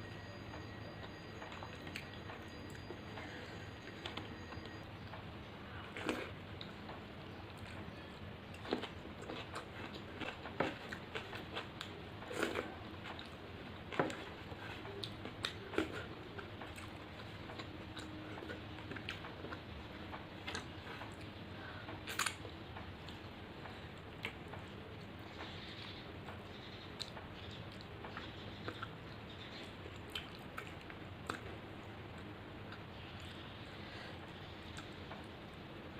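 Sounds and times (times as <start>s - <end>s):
person chewing food: 5.9s - 6.8s, 7.6s - 22.4s, 27.0s - 31.6s.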